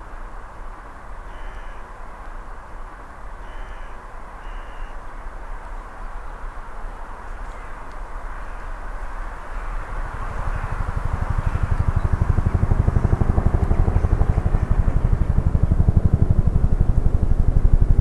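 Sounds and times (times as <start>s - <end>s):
distant train rumble: 6.9s - 18.0s.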